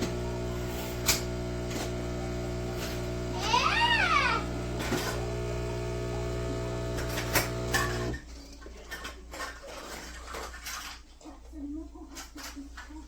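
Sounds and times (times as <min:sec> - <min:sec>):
espresso machine humming: 0:00.0 - 0:08.2.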